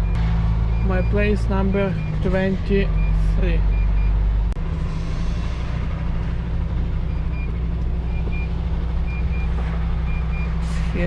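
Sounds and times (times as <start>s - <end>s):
reversing alarm beeps: 0.0s - 4.2s, 7.0s - 10.6s
diesel engine running: 0.0s - 11.0s.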